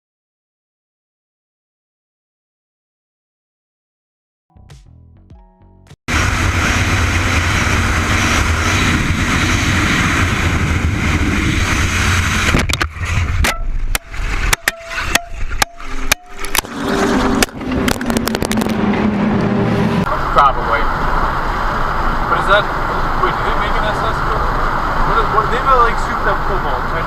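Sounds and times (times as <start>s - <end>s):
car road and engine noise: 6.1s - 27.0s
sharp clicks and knocks: 12.5s - 16.7s.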